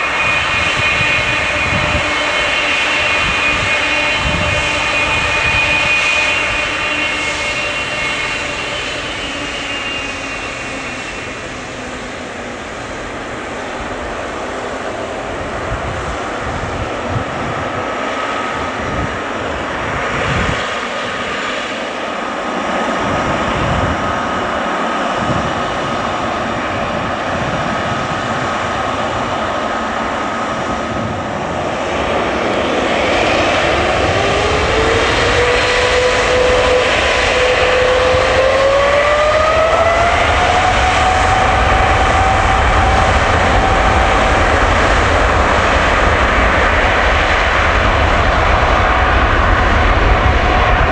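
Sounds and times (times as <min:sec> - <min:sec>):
jet engines whining and roaring: 0:00.0 - 0:50.9.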